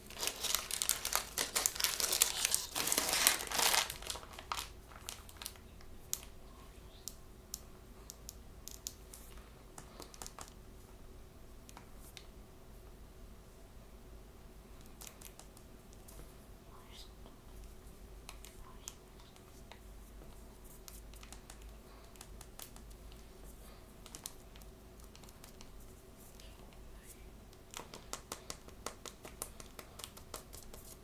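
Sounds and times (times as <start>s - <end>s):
packaging being handled and opened: 0.0s - 6.3s.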